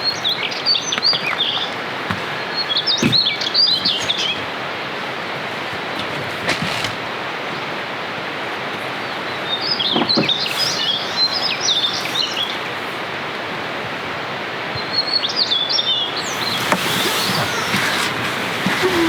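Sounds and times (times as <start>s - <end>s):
steady rain hiss: 15.7s - 19.0s.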